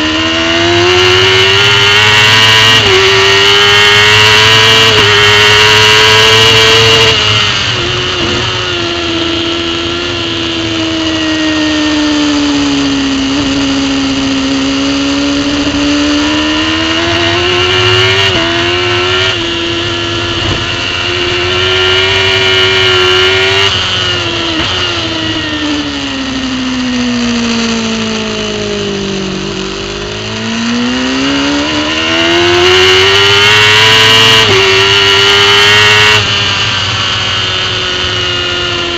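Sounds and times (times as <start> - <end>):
racing motorcycle engine revving: 0.0 - 38.9
wind rush: 14.6 - 25.7.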